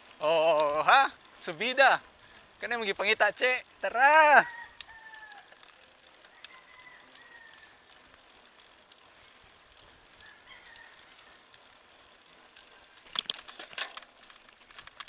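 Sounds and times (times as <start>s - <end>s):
outdoor hiss: 0.0s - 15.0s
distant rooster crowing: 4.3s - 8.0s, 10.1s - 11.5s.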